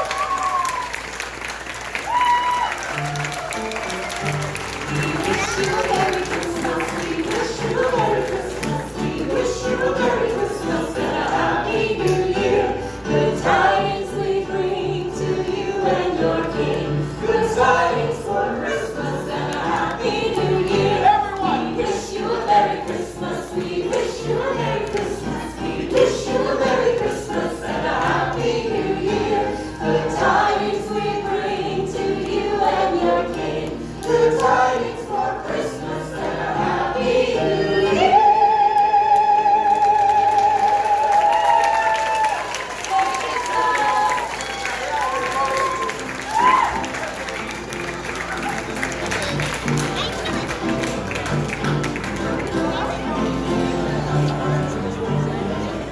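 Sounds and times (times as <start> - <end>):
musical accompaniment: 0.1 - 55.9
voices singing in chorus: 4.2 - 46.5.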